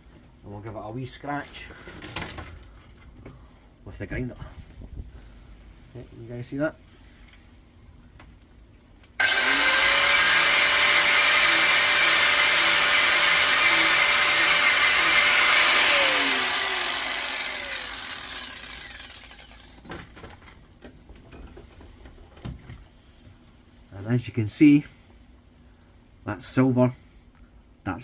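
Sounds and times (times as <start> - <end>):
angle grinder grinding metal: 9.2 - 19.8
grinder disc spinning down: 9.2 - 19.8.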